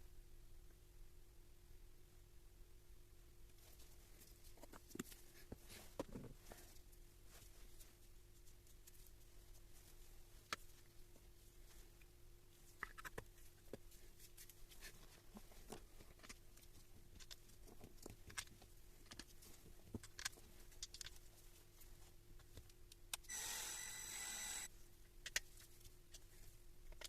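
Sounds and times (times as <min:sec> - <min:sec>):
faint steady hum: 0:00.0 - 0:27.0
faint clicks and taps: 0:12.7 - 0:23.3.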